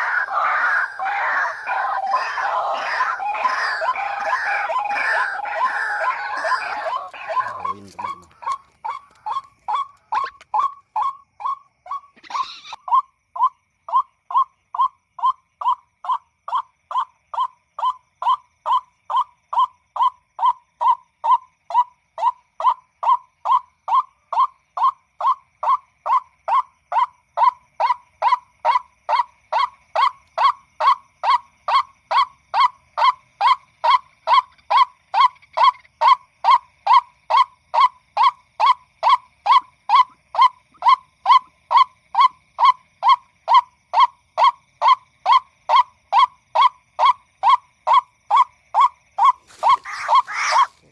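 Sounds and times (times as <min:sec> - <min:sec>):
waterhen calling: 0:00.0 - 0:13.0, 0:46.6 - 0:50.9.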